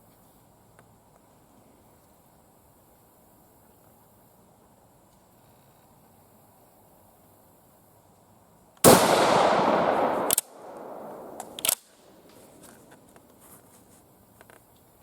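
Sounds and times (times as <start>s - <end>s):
rifle shot: 8.8s - 11.9s
rifle bolt metallic clacks: 8.9s - 11.9s.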